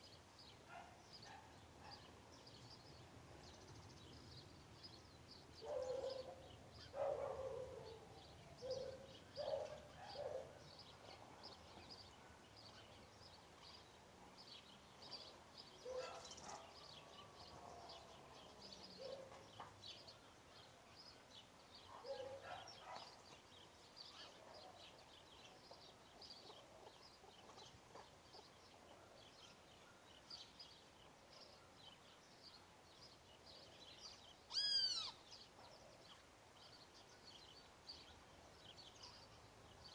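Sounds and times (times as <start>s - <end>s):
small birds chirping: 0.0s - 39.9s
lower bird calls: 34.5s - 35.2s.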